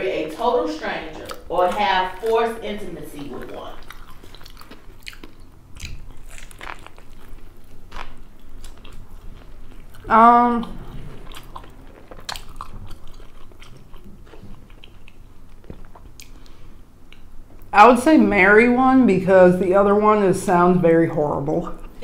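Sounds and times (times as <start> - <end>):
wet mouth clicks: 1.2 - 1.5, 3.8 - 7.4
biting and chewing food: 1.2 - 17.7.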